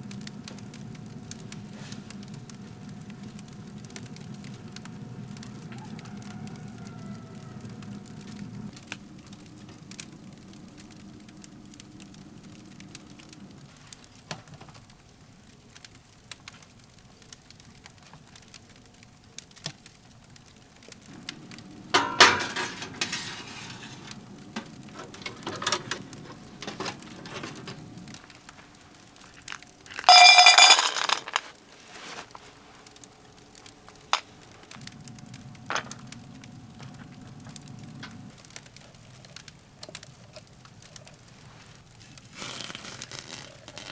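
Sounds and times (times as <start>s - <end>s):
firewood crackling in a stove: 0.0s - 43.9s
low steady hum: 20.9s - 43.9s
dishes clinking: 21.1s - 28.1s, 30.0s - 31.4s.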